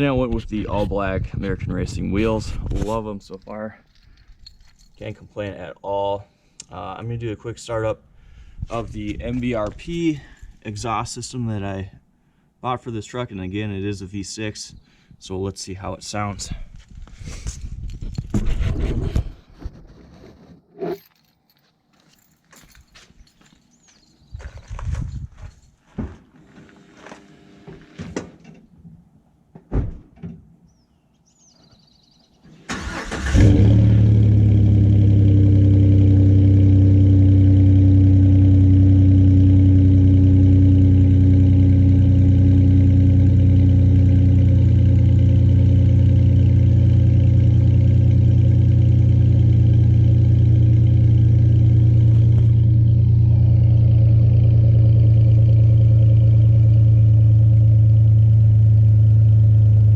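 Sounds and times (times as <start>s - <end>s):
truck engine cranking and starting: 32.5s - 35.8s
deep engine idle: 33.4s - 59.9s.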